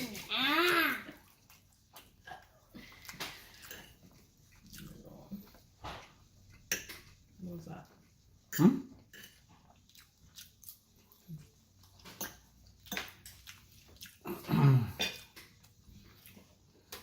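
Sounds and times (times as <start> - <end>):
chewing smacks and clicks: 9.1 - 14.2.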